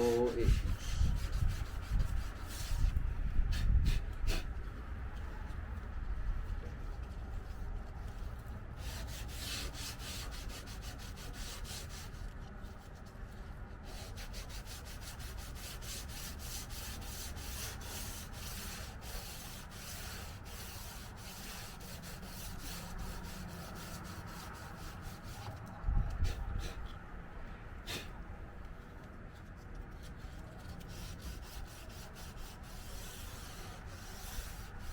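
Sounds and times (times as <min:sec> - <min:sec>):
sandpaper rubbing on car panel: 0:00.0 - 0:04.5, 0:08.8 - 0:25.6, 0:29.9 - 0:34.9.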